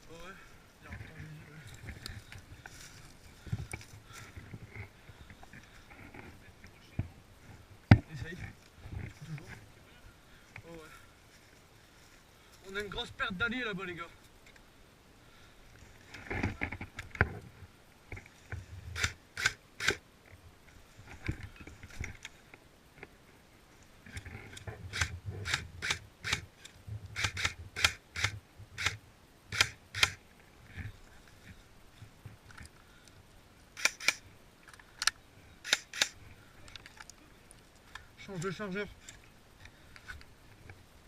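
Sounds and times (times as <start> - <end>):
airsoft rifle shots: 35.6 - 36.2.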